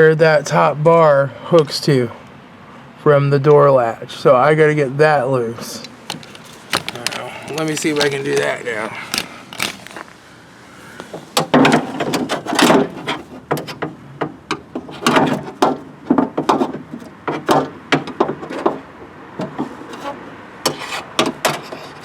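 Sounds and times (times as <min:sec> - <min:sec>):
hands clicking and knocking in car door: 0:05.8 - 0:10.1, 0:11.0 - 0:19.8.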